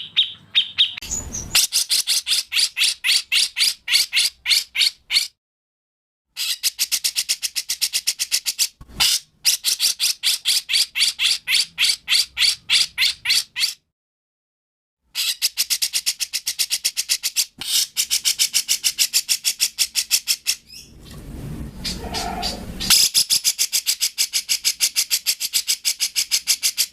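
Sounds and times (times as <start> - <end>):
songbird chattering song: 0.0 - 5.3.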